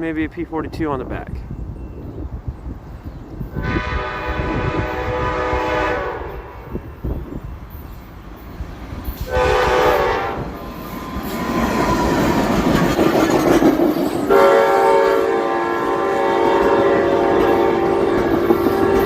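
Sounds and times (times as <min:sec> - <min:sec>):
locomotive air horn: 0:03.6 - 0:06.9, 0:09.3 - 0:10.6, 0:14.3 - 0:19.0
train wheels clattering on rails: 0:10.6 - 0:14.6, 0:16.6 - 0:19.0.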